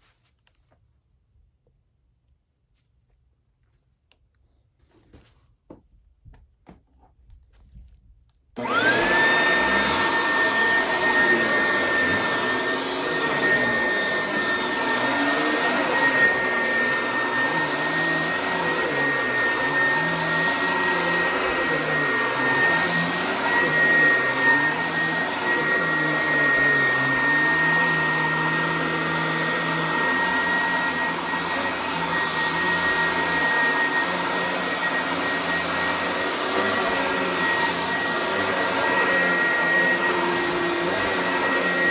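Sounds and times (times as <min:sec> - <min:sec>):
vacuum cleaner motor whine: 0:08.6 - 0:41.9.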